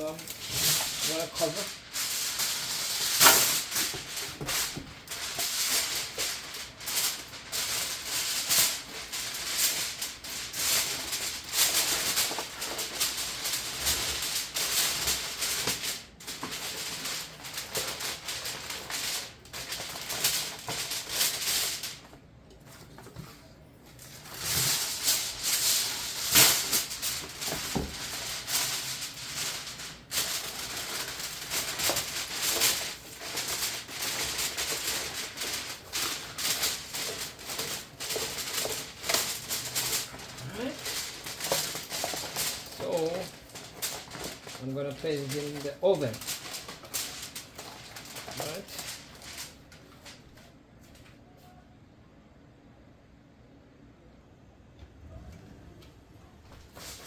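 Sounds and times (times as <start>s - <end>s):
aluminium foil crinkling: 0.0s - 51.1s, 56.3s - 57.0s.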